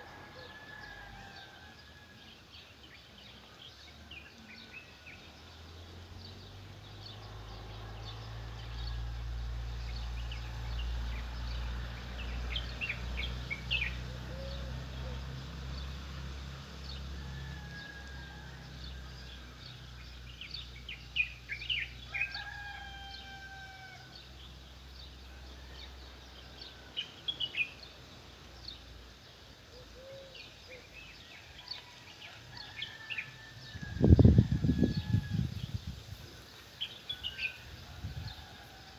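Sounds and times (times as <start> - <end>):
distant rooster crowing: 0.0 - 2.4, 16.8 - 19.4, 22.0 - 24.3, 31.6 - 35.8, 36.8 - 38.9.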